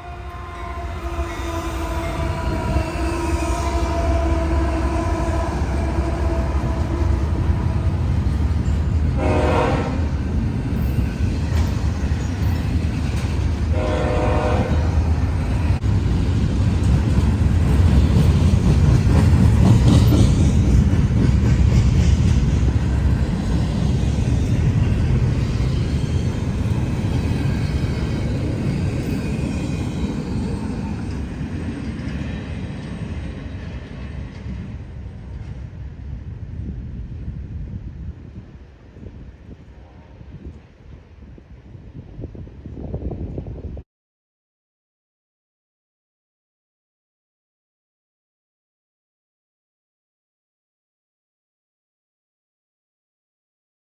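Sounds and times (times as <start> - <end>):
locomotive horn: 0.0 - 8.5, 9.1 - 10.4, 13.7 - 15.6
freight cars rumbling past: 0.0 - 35.7.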